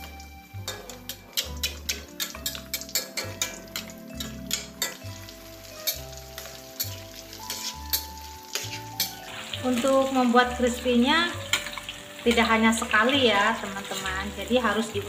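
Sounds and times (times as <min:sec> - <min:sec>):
fritters sizzling in hot oil: 0:00.0 - 0:15.0
utensil clicking against pan: 0:00.7 - 0:05.1, 0:05.8 - 0:09.2.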